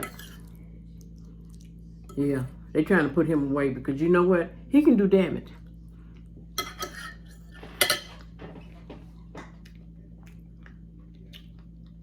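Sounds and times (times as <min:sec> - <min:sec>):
cutlery clinking on a dish: 0:06.6 - 0:08.3.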